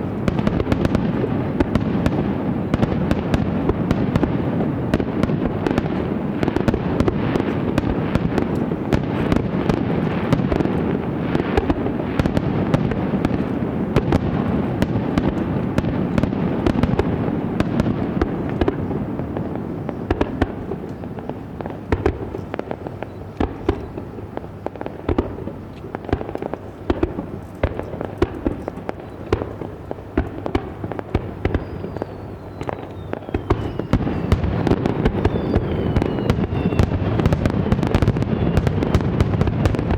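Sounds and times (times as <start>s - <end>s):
fireworks crackling and popping: 0.0s - 39.9s
faint falling whistle: 31.5s - 34.4s, 35.2s - 37.0s.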